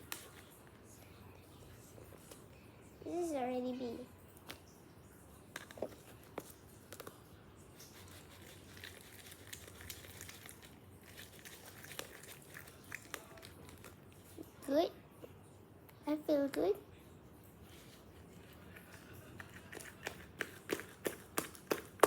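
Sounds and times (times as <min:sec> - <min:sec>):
small objects clicking and rustling: 0:05.6 - 0:07.2, 0:07.8 - 0:14.0, 0:19.2 - 0:22.0.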